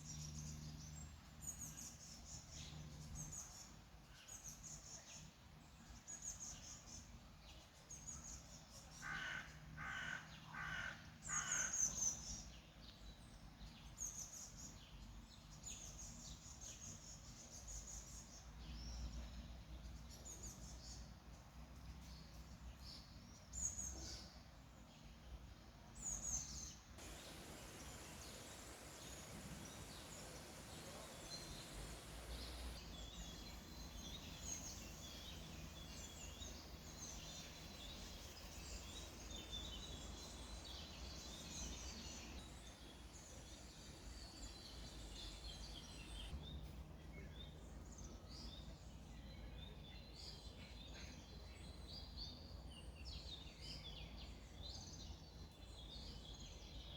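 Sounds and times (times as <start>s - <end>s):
small birds chirping: 0.0s - 56.9s
faint low rush: 27.0s - 42.4s.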